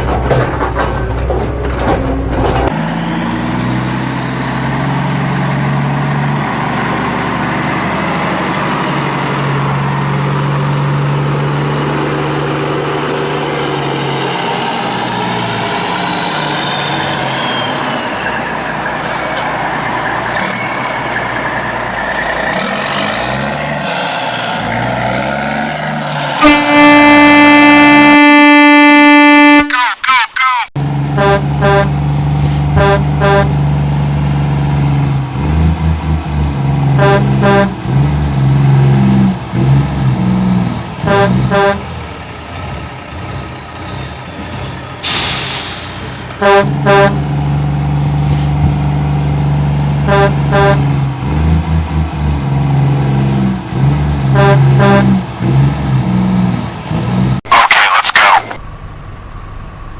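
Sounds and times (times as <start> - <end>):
vehicle noise: 0.0 - 59.9
loud horn blast: 26.3 - 29.8, 31.2 - 32.0, 32.8 - 33.6, 37.0 - 37.8, 41.0 - 41.9, 46.4 - 47.3, 50.1 - 51.0, 54.3 - 55.2
truck engine running: 30.8 - 56.8.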